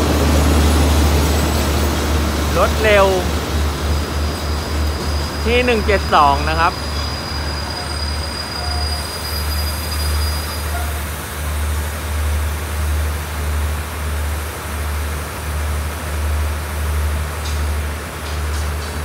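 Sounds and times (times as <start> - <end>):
train coaches rolling past: 0.0 - 19.0.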